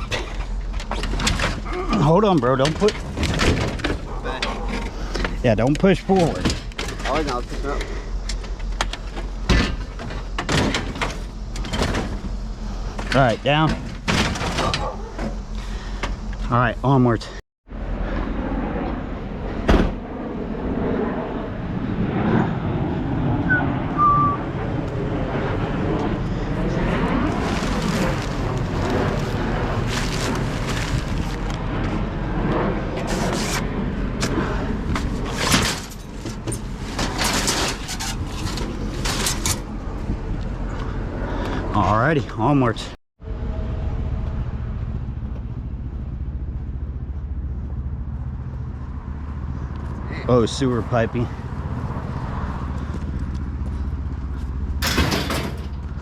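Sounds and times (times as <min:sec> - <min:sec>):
vehicle engine and road rumble: 0:00.0 - 0:56.0
high whistle-like tones: 0:23.5 - 0:24.5.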